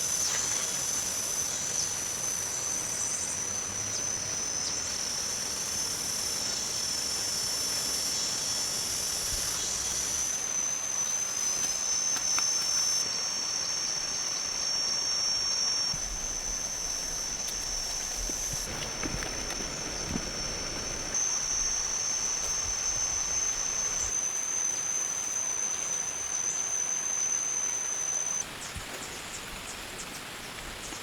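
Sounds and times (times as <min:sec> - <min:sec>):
insect trilling chorus: 0:00.0 - 0:29.4
background hiss: 0:12.5 - 0:25.4.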